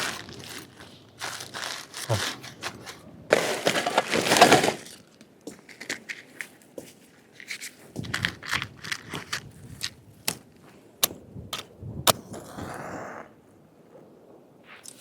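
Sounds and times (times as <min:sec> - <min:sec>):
rustle: 0:00.0 - 0:10.9.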